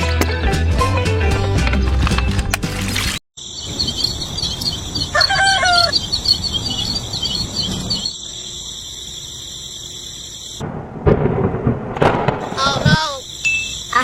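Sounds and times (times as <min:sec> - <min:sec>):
high-pitched chirping: 0:03.4 - 0:08.6
rooster crowing: 0:03.9 - 0:08.1.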